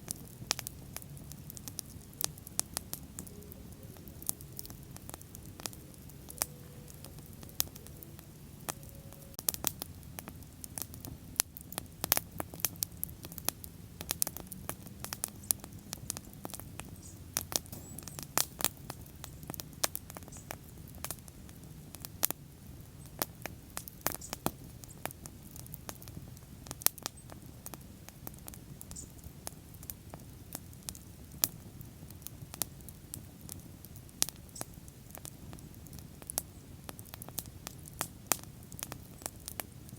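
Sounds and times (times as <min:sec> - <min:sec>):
fire popping and crackling: 0:00.0 - 0:39.9
low rumble of flames: 0:00.0 - 0:39.9.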